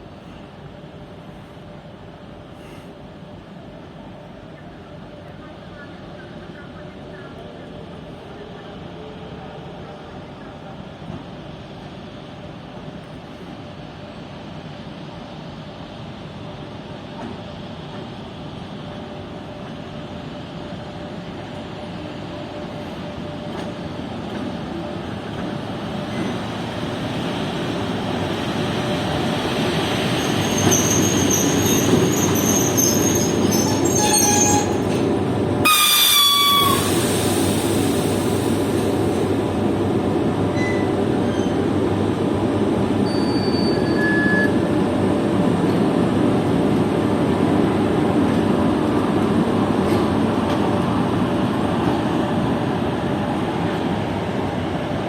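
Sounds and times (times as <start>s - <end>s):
electric locomotive pulling away: 25.0s - 45.8s
high train horn signal: 35.6s - 36.9s.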